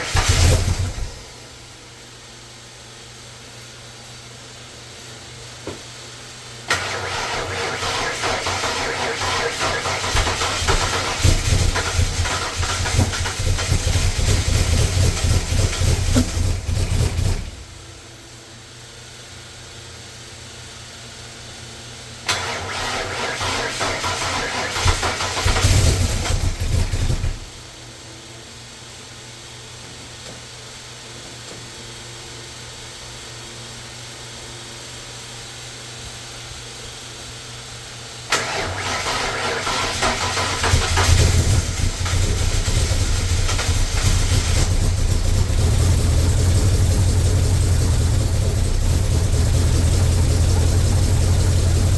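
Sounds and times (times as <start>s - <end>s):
car engine running: 6.8s - 18.0s, 23.4s - 27.6s, 38.4s - 51.9s
steady low hum: 40.4s - 51.9s.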